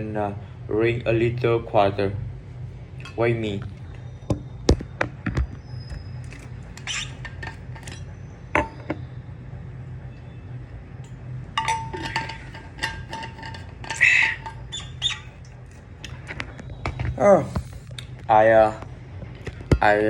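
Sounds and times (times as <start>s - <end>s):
low steady hum: 0.0s - 20.0s
scrape or squeak: 5.9s - 8.1s
glass knocking and clinking: 11.6s - 15.3s.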